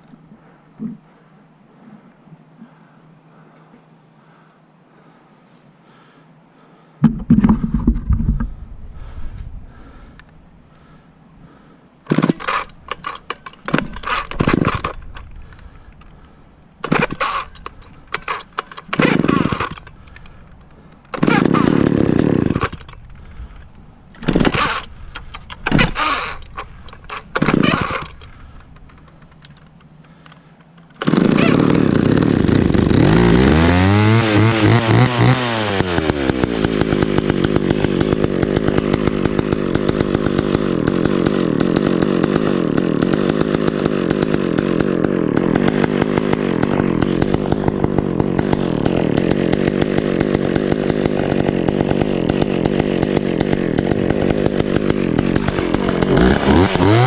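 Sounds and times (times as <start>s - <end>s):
chainsaw revving and running: 12.1s - 29.4s, 30.9s - 57.0s
chainsaw pull-start sputters: 12.1s - 57.0s.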